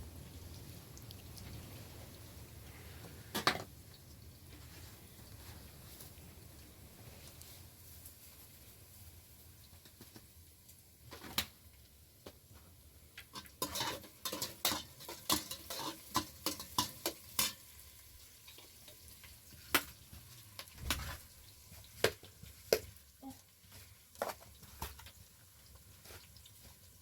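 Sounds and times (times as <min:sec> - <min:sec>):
food frying: 0:00.0 - 0:27.0
utensil scraping in a pan: 0:13.2 - 0:22.7.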